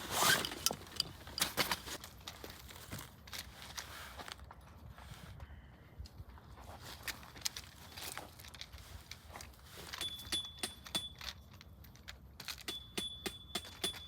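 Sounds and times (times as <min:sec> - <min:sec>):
high ringing tone: 0:10.0 - 0:11.3
metallic clicks and taps: 0:10.0 - 0:14.0.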